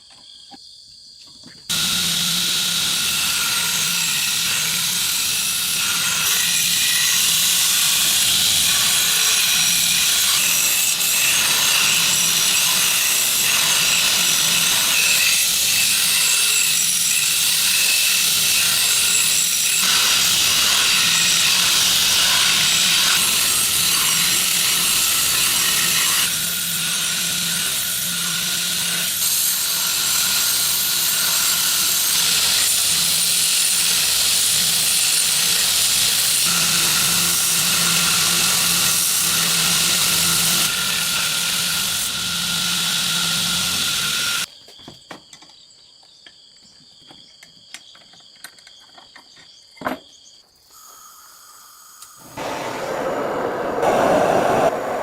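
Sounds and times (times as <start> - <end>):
crickets chirping: 0.0 - 1.7, 44.5 - 55.0
loud hissing rush: 52.2 - 55.0.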